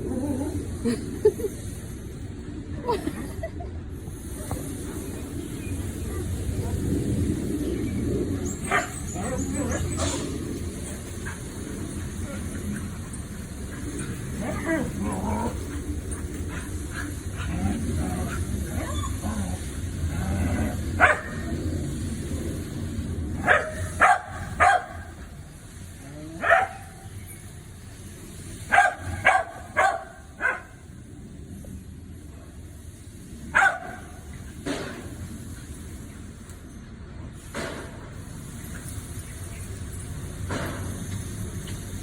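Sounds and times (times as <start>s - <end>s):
dog whining: 8.4s - 11.0s, 13.8s - 16.6s, 17.4s - 19.7s
dog barking: 8.6s - 10.2s, 21.0s - 21.5s, 23.4s - 25.2s, 26.4s - 27.0s, 28.7s - 30.8s, 33.5s - 34.1s.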